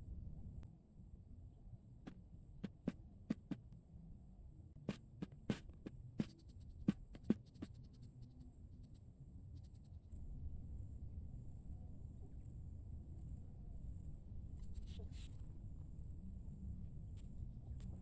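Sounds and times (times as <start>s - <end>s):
sharp taps and clicks: 2.6s - 3.6s.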